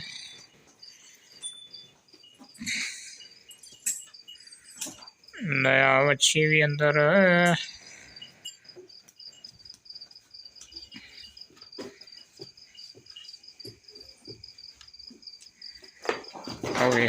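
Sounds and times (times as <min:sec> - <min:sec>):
crickets chirping: 0:00.0 - 0:17.0
faint knocks and rustles: 0:08.4 - 0:17.0.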